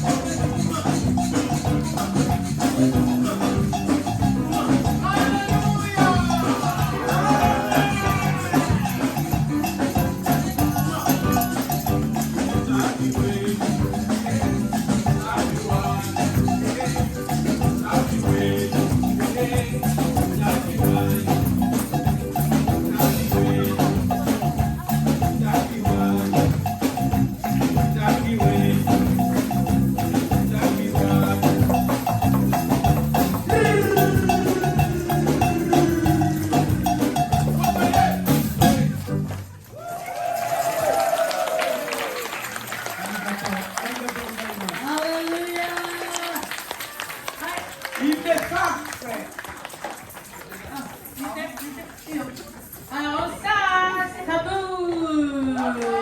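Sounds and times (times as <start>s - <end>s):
bass line: 0.0s - 39.6s
drums and shaker beat: 0.0s - 49.4s
gospel band playing: 0.0s - 56.0s.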